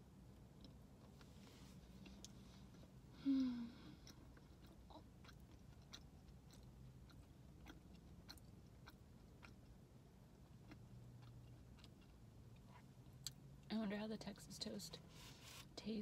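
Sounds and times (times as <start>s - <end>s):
person chewing softly: 0.3s - 13.5s
person humming: 3.2s - 3.9s.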